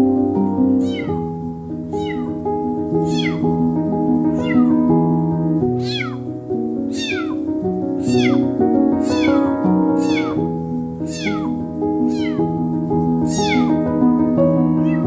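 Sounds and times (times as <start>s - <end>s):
kitten meowing: 0.7s - 3.7s, 4.3s - 4.9s, 5.8s - 12.6s, 13.3s - 13.9s, 14.8s - 15.0s.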